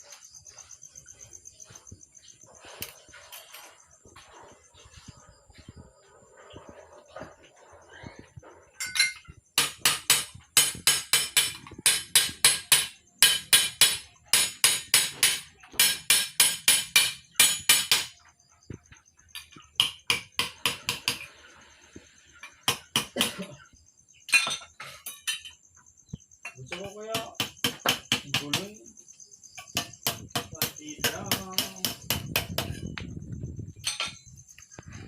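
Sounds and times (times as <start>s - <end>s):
hammer striking sheet metal: 9.6s - 18.1s, 29.7s - 32.8s.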